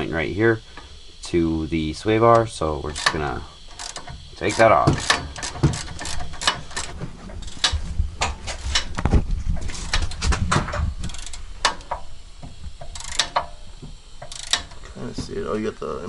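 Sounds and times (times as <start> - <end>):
metallic clicks of hand tools: 2.3 - 7.8, 12.8 - 13.6, 14.2 - 14.8.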